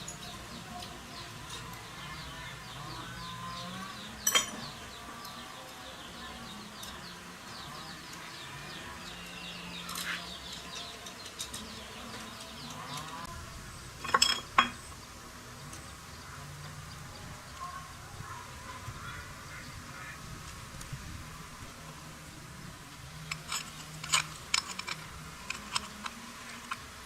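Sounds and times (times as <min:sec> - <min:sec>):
small birds chirping: 0:00.0 - 0:27.0
sharp clinks: 0:04.2 - 0:04.7.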